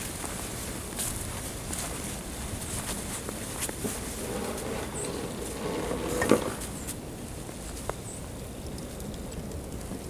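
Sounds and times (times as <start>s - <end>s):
footsteps crunching in snow: 0.0s - 8.0s
wind rumble on microphone: 0.0s - 10.0s.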